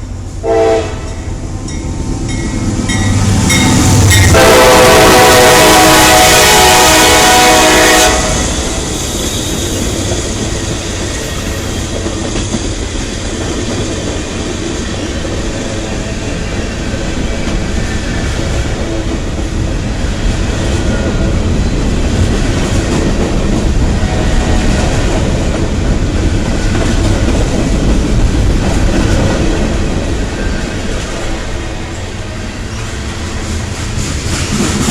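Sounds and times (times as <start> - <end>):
train horn: 0.4 - 1.3, 4.2 - 8.9
train wheels clacking on rails: 1.0 - 34.9.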